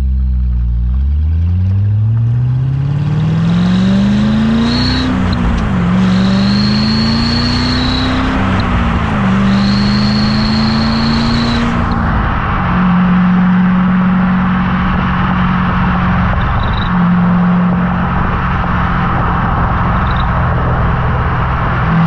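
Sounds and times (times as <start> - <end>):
car exhaust accelerating hard: 0.0 - 22.0
high fake turbo whistle: 4.6 - 12.0.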